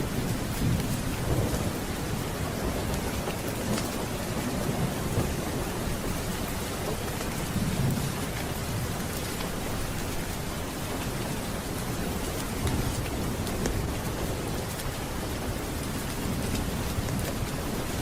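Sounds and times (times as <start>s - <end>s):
low rolling thunder: 0.0s - 9.2s
steady rain: 0.0s - 18.0s.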